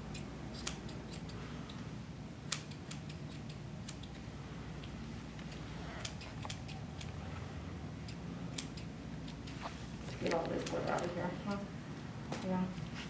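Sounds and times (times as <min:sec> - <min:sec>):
shears snipping hair: 0:00.0 - 0:04.2, 0:04.8 - 0:07.2, 0:08.0 - 0:11.7
steady low hum: 0:00.0 - 0:13.0.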